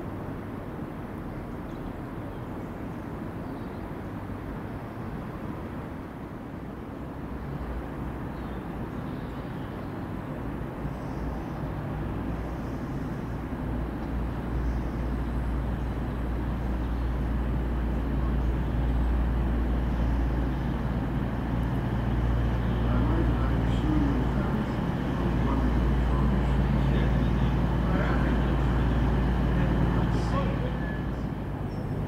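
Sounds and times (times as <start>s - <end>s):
diesel train engine droning: 10.6s - 32.0s.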